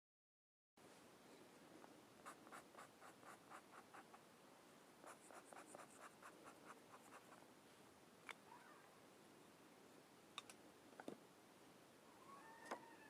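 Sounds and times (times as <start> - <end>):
colouring strokes on paper: 2.2 - 4.2, 5.0 - 7.5.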